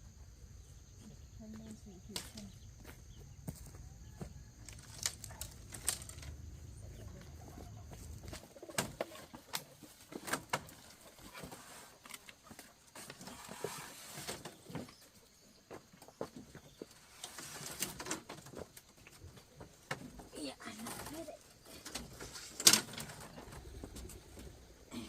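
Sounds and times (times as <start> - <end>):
chickens clucking: 4.7 - 11.6.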